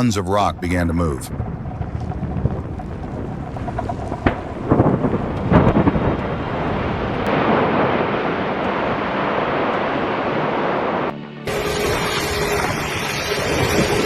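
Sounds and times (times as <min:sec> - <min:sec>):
rock mass rumbling: 0:00.0 - 0:09.6
rock blast crack: 0:00.6 - 0:08.5.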